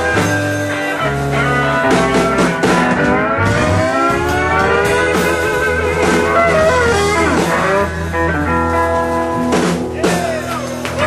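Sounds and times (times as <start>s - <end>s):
lead guitar bent notes: 0.0s - 9.9s
electric blues band playing: 0.0s - 11.0s
drum and cymbal hit: 1.9s - 8.3s.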